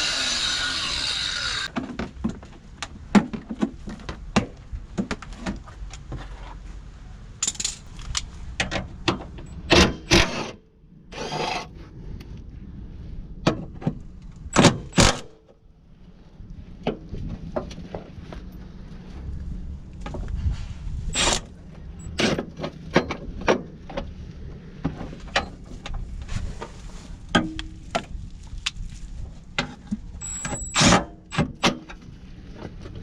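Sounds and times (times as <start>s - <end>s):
power tool whirring: 0.0s - 1.7s, 21.2s - 21.5s.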